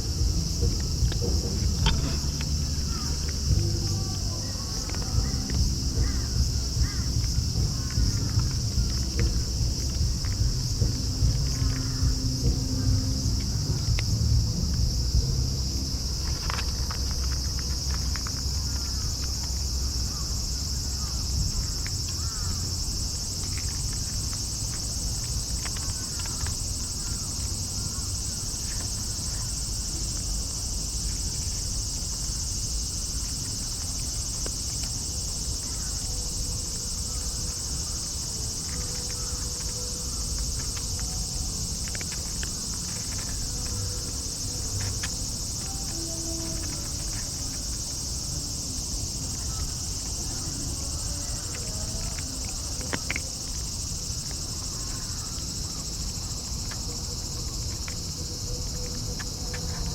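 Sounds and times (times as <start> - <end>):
low rumble: 0.0 - 21.6
high-pitched insect chorus: 0.0 - 59.9.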